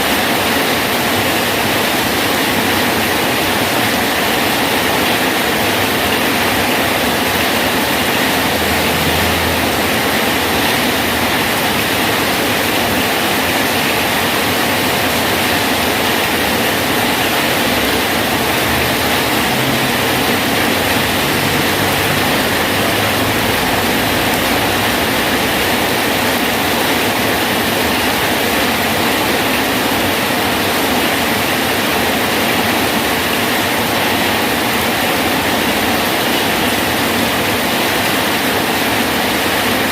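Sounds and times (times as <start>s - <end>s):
rain falling on a bridge: 0.0s - 39.9s.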